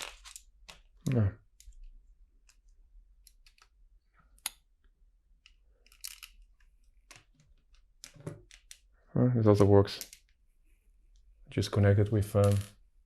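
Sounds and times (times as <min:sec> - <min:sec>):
plastic bricks clicking together: 0:05.4 - 0:08.8.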